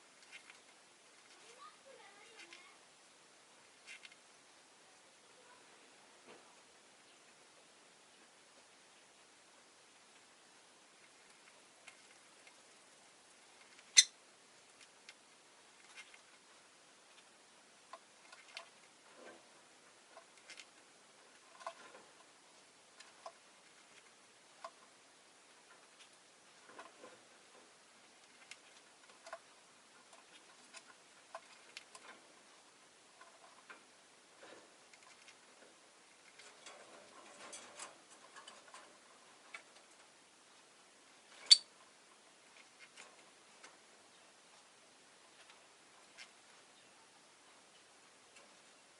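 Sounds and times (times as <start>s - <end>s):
birds clicking and tapping in cage: 0.1s - 2.8s, 11.0s - 40.2s, 41.3s - 44.7s.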